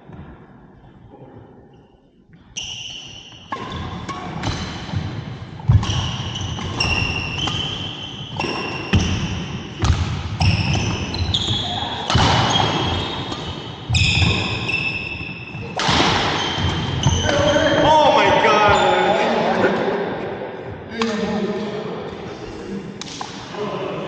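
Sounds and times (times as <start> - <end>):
shoes squeaking on floor: 2.4 - 19.4
racket hitting shuttlecock: 3.5 - 11.3, 12.0 - 17.4.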